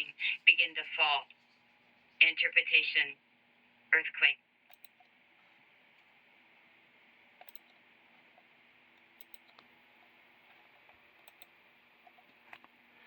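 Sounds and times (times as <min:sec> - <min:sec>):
soft clicks: 0:04.7 - 0:05.1, 0:07.4 - 0:07.8, 0:10.5 - 0:12.8.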